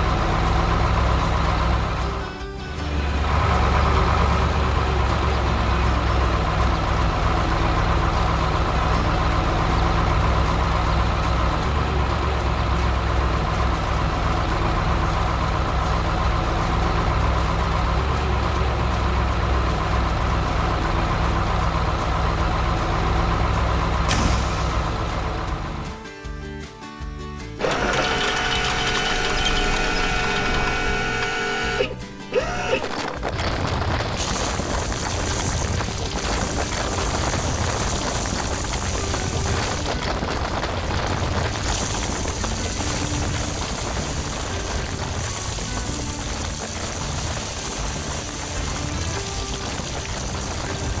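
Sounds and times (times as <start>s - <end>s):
heavy vehicle engine running: 0.0s - 26.1s, 27.4s - 51.0s
hiss: 24.1s - 25.1s, 34.2s - 39.9s, 40.9s - 51.0s.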